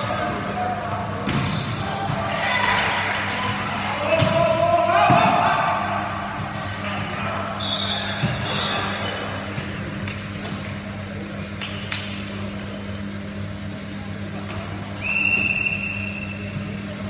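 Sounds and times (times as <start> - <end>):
steady low hum: 0.0 - 17.0
high shoe squeal: 15.0 - 16.7.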